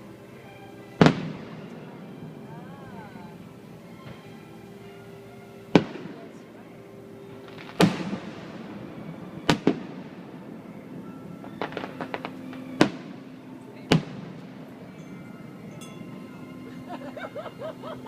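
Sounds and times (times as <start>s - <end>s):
fireworks booming: 1.0s - 1.9s, 5.7s - 6.4s, 7.4s - 10.6s, 11.4s - 13.2s, 13.9s - 14.6s
small firework pops: 7.5s - 8.2s, 9.5s - 10.0s.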